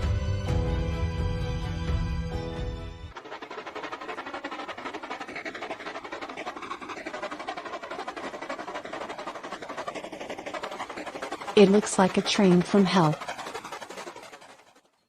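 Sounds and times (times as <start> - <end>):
train rattling on rails: 3.1 - 14.6.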